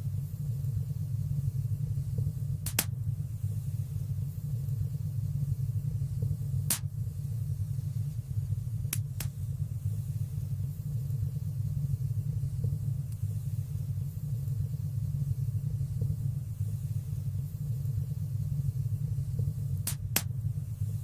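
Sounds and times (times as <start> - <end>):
fire crackles and pops: 2.0 - 3.2, 5.9 - 7.2, 8.8 - 9.6, 19.3 - 20.6
wood fire burning: 2.2 - 2.9, 6.6 - 7.0, 19.8 - 20.6.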